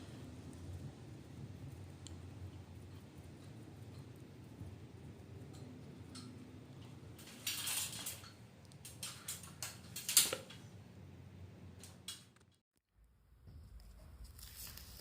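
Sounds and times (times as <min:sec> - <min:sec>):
low steady hum: 0:00.0 - 0:15.0
sharp clicks and knocks: 0:02.0 - 0:10.7.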